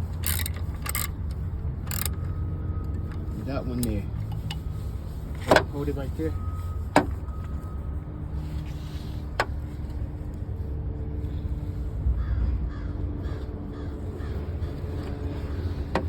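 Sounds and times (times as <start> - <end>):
bird calling: 12.2 - 15.6.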